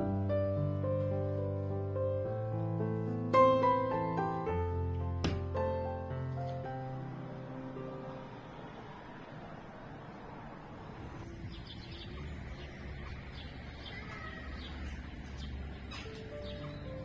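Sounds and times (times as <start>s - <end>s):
birds chirping: 10.8s - 17.0s.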